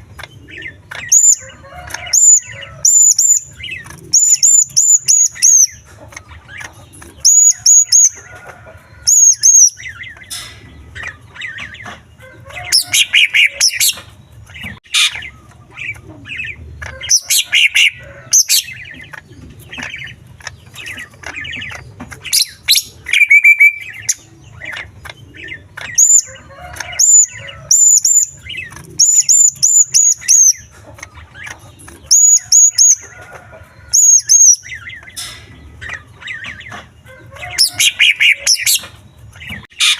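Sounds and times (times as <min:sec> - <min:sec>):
high bird chirps: 0:00.0 - 0:08.2, 0:09.0 - 0:12.0, 0:19.7 - 0:33.1, 0:33.9 - 0:36.8
rapid bird warbling: 0:00.0 - 0:08.2, 0:09.0 - 0:11.8, 0:12.6 - 0:33.1
bird singing varied song: 0:00.0 - 0:39.9.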